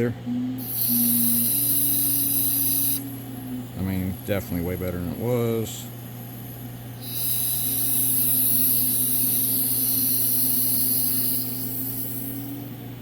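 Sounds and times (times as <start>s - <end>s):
machine hum: 0.0s - 13.0s
air hissing: 0.7s - 3.1s, 7.0s - 12.6s.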